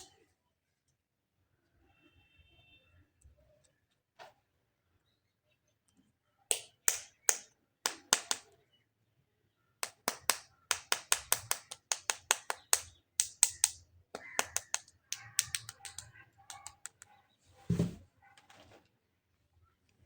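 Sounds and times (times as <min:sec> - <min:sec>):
sharp clicks or taps: 0:09.8 - 0:17.1.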